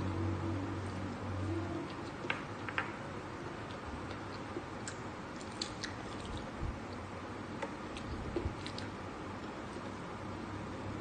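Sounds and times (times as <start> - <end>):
people chewing food: 3.6 - 7.1.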